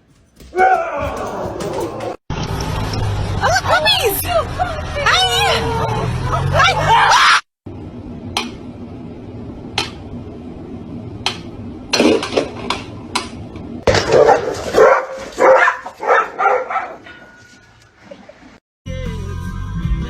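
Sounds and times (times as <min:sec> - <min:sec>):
dog barking: 0:13.9 - 0:17.2.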